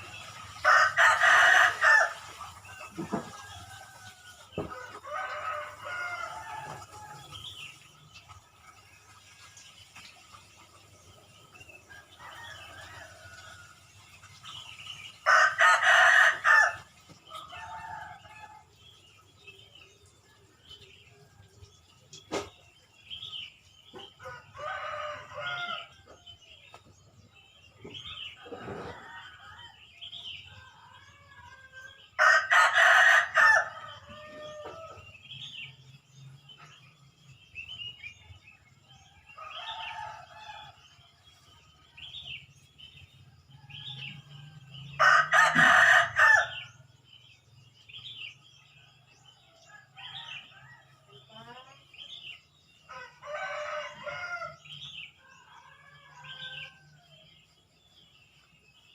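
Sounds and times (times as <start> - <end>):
rooster crowing: 0.6 - 2.3, 15.2 - 18.7, 24.3 - 26.0, 30.6 - 35.0, 43.6 - 46.8, 52.9 - 54.7.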